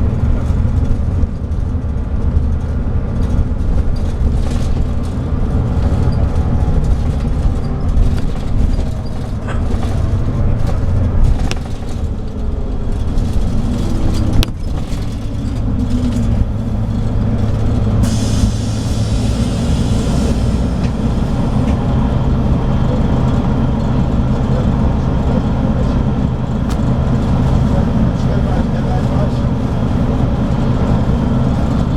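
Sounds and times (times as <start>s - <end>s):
diesel coach engine running: 0.0s - 31.9s
hiss: 18.0s - 21.1s.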